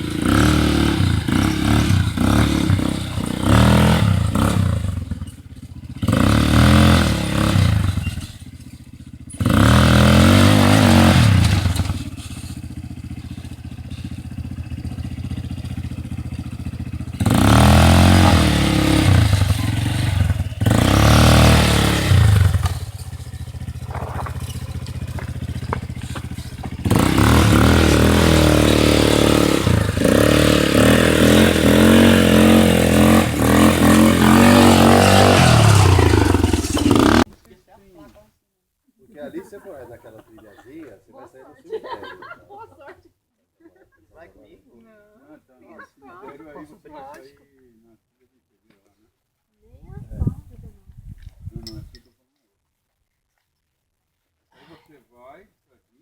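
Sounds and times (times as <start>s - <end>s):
atv engine revving: 0.0s - 37.3s.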